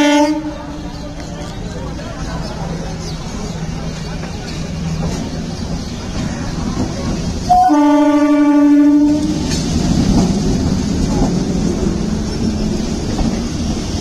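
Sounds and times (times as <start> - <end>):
train horn blast: 0.0 - 0.8, 7.5 - 9.5
train carriages rumbling past: 0.0 - 14.0.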